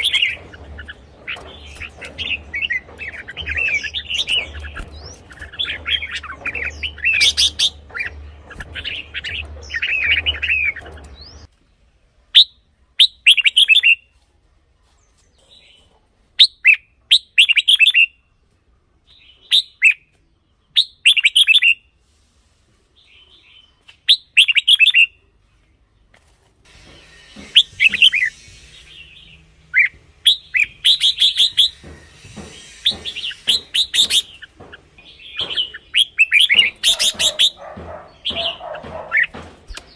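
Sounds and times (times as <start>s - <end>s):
bird singing warbling whistles: 27.4s - 31.8s.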